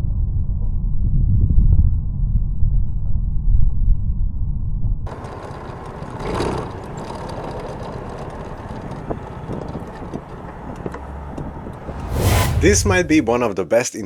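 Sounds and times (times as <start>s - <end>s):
wind and road noise: 5.1s - 13.6s.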